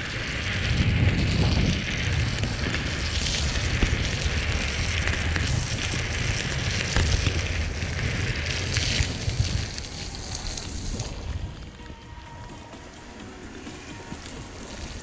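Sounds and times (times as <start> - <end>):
motorcycle engine rumble: 0.0 - 15.0
rain spray on microphone: 0.0 - 15.0
wind rushing: 0.0 - 15.0.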